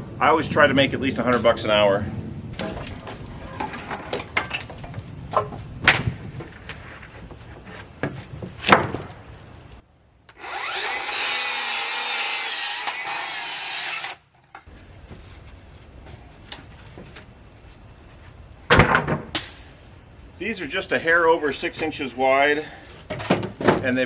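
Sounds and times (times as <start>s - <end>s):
wooden boards knocking: 2.6s - 9.3s
power saw cutting wood: 10.3s - 14.2s.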